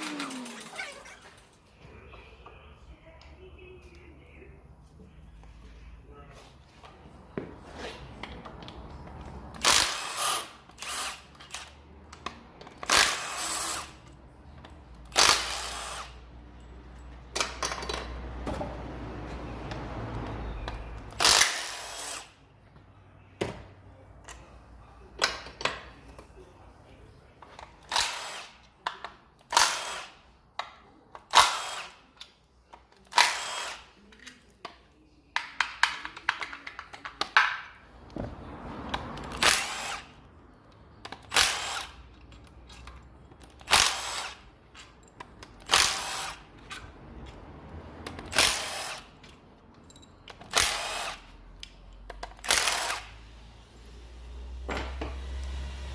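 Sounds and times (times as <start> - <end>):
tools clanking: 0.0 - 1.8, 16.7 - 18.7.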